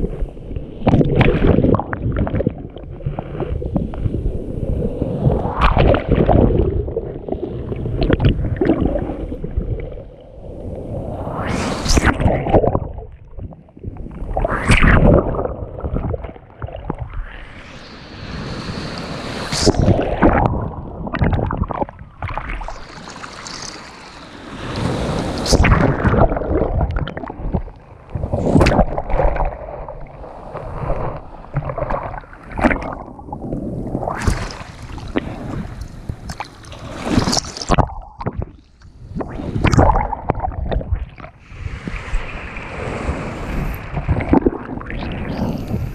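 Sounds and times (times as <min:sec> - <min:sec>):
sea waves breaking: 0:10.4 - 0:12.8, 0:14.1 - 0:45.9.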